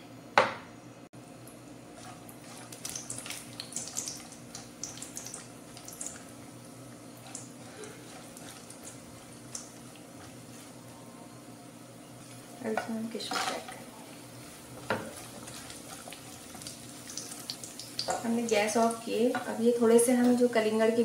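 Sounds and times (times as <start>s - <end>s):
spatula stirring in pan: 1.9s - 6.4s, 7.0s - 11.4s, 14.3s - 18.2s
nuts sizzling and crackling in pan: 2.0s - 10.8s, 12.0s - 21.0s.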